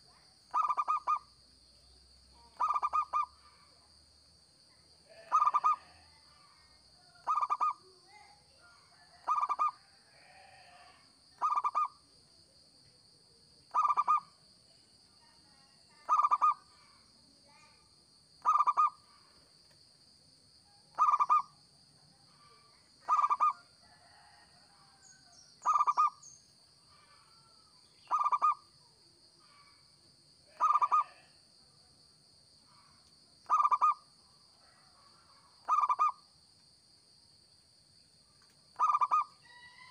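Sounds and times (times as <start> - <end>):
dove cooing: 0.5 - 1.2, 2.6 - 3.3, 5.2 - 6.0, 7.2 - 7.8, 9.2 - 9.8, 11.4 - 11.9, 13.7 - 14.3, 16.1 - 16.6, 18.4 - 19.0, 20.9 - 21.5, 23.0 - 23.5, 28.1 - 28.6, 30.5 - 31.3, 33.5 - 34.0, 35.6 - 36.2, 38.8 - 39.2.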